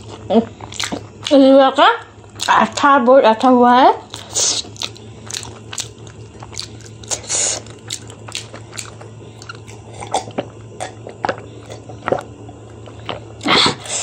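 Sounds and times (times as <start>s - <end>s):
faint low hum: 0.0s - 14.0s
wet chewing and lip smacks: 0.1s - 1.3s, 4.1s - 13.9s.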